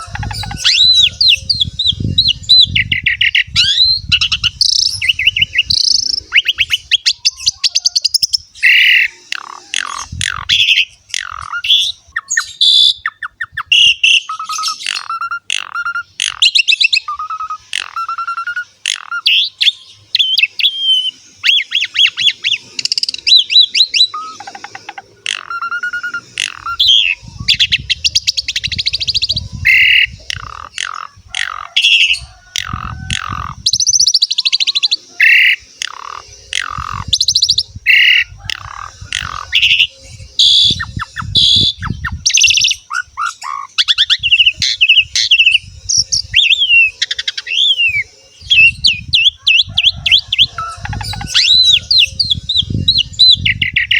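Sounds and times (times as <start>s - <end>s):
starling singing: 0.0s - 53.9s.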